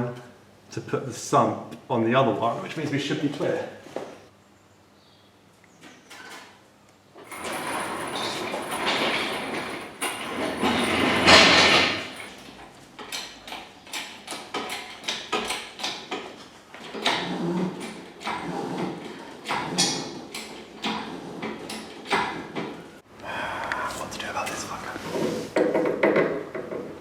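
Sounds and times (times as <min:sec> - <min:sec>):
engine scraping on wooden blocks: 0:07.3 - 0:12.3, 0:16.4 - 0:23.0.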